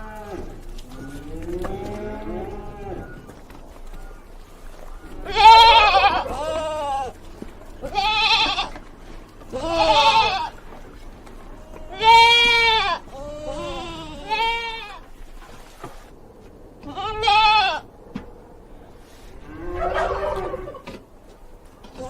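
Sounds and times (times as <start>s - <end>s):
goat bleating: 5.1s - 10.7s, 11.6s - 15.1s, 16.8s - 17.8s.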